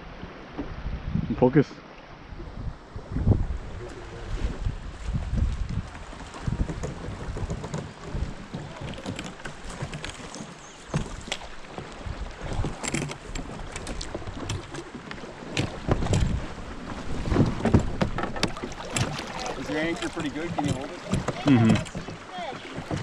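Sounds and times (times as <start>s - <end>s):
wind rumbling on microphone: 0.0s - 1.6s, 2.2s - 23.0s.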